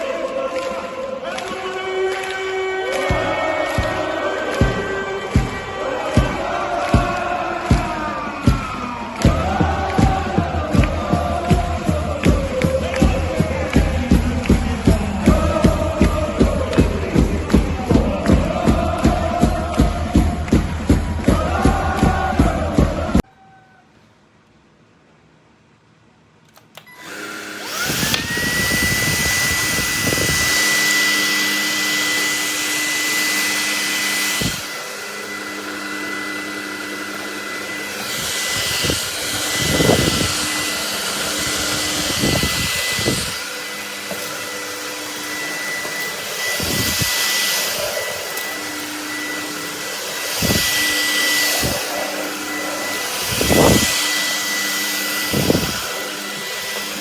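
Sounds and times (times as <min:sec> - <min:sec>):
vacuum motor whine: 0:26.8 - 0:57.0
suction rushing: 0:27.7 - 0:57.0.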